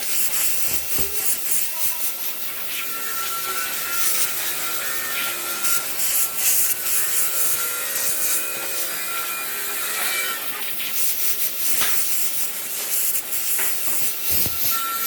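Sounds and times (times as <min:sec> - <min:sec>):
wood being sanded: 0:00.0 - 0:11.4.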